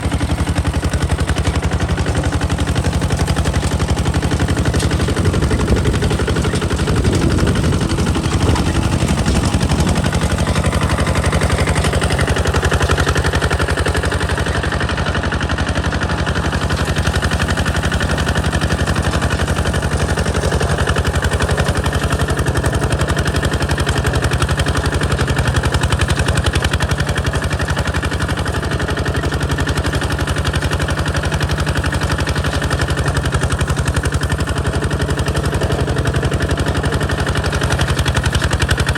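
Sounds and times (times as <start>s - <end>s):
diesel engine exhaust popping: 4.0s - 14.4s.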